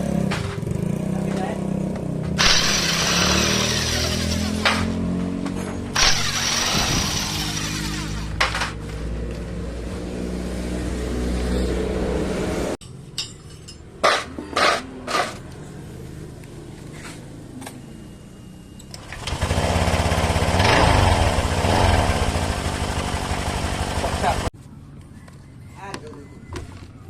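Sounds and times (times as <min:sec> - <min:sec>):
scooter engine running and revving: 0:00.0 - 0:08.4, 0:19.1 - 0:24.5.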